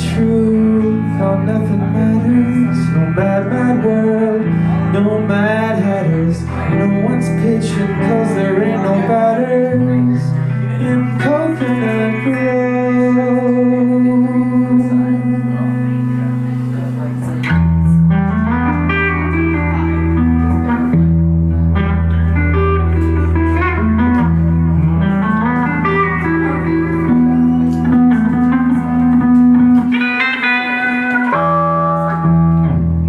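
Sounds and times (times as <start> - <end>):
guitar melody: 0.0 - 33.0
low bass notes: 0.0 - 33.0.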